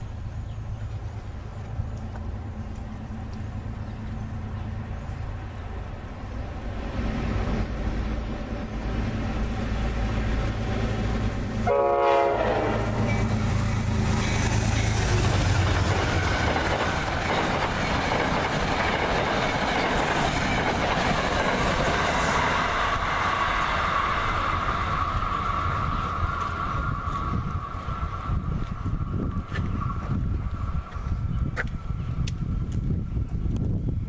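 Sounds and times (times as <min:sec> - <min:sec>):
train horn blast: 0:11.6 - 0:13.3
wheels clacking over rail joints: 0:13.0 - 0:32.4.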